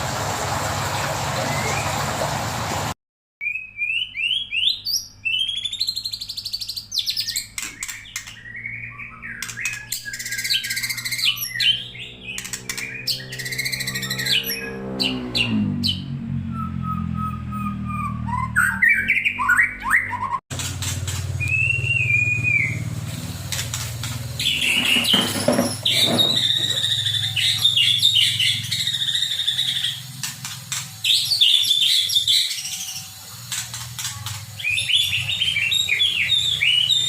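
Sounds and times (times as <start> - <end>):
bird singing whistled phrases: 3.4 - 14.8, 15.4 - 20.4, 21.4 - 22.9, 24.4 - 30.1, 31.0 - 33.1, 34.0 - 37.0.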